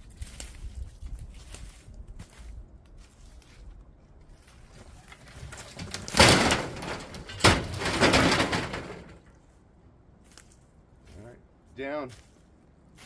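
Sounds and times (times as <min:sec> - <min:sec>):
branches rustling and crackling: 0:00.0 - 0:13.0
tree crashing down: 0:05.1 - 0:09.3.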